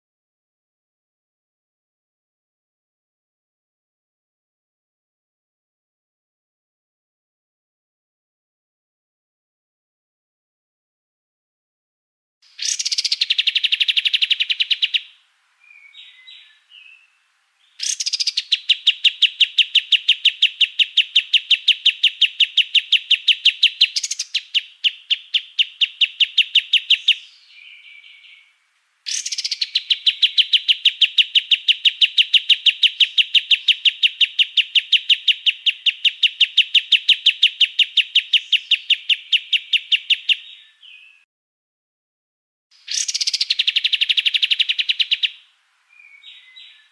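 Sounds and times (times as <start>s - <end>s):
short bird calls: 12.4s - 41.2s, 42.7s - 46.9s
songbird rapid trills: 12.5s - 40.4s, 42.8s - 46.9s.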